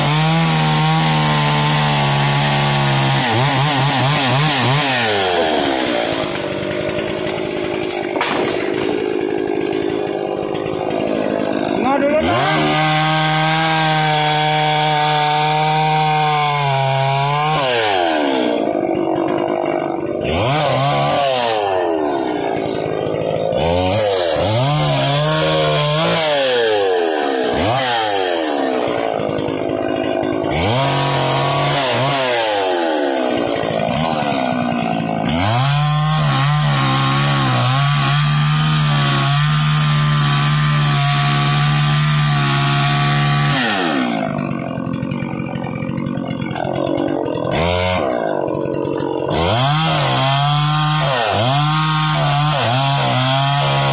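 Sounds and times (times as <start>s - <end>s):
chainsaw running at high revs: 0.0s - 53.9s.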